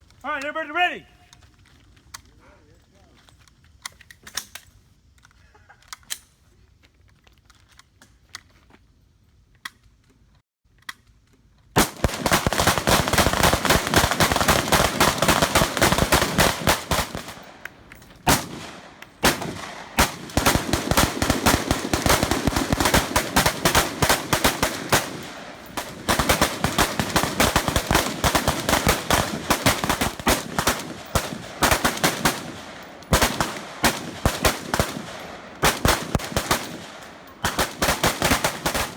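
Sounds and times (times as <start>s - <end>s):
rifles firing rapidly: 11.8s - 38.9s.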